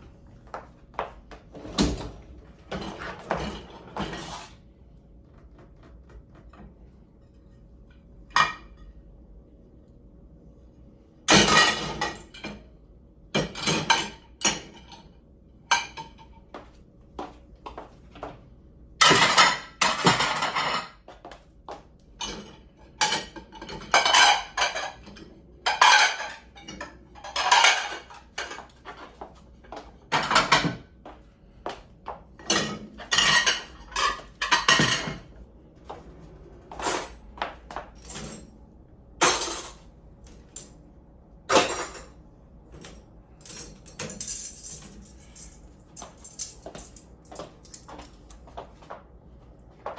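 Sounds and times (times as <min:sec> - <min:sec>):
dishes and cutlery clinking: 0:22.2 - 0:29.1, 0:32.4 - 0:35.3.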